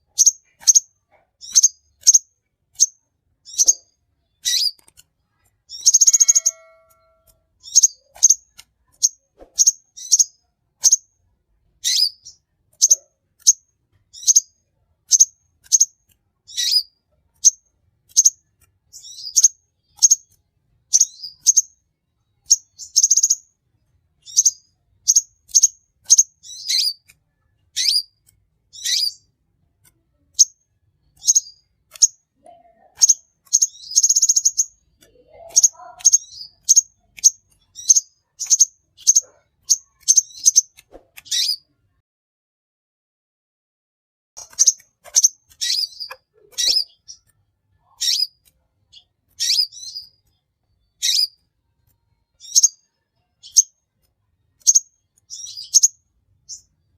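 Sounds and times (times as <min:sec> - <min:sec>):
small bird chirping: 0:00.0 - 0:41.8, 0:44.4 - 0:56.9
bird buzzy trill: 0:05.7 - 0:08.4.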